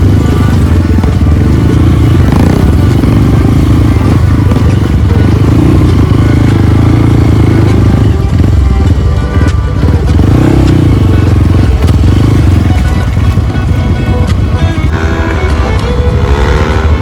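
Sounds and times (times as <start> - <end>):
motorcycle clatter: 0.0 - 17.0
motorcycle engine at low revs: 0.0 - 17.0.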